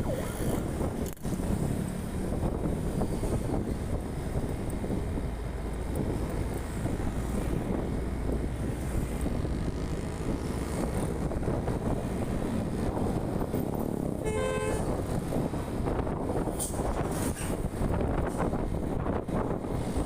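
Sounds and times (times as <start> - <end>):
vehicle engine and road noise: 0.0 - 20.0
vehicle horn toot: 14.2 - 14.9.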